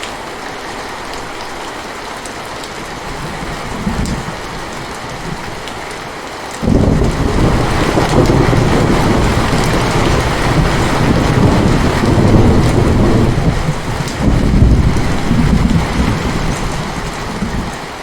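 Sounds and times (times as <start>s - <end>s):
heavy rain: 0.0s - 18.0s
deep thunder rumble: 3.1s - 5.7s, 6.6s - 17.8s.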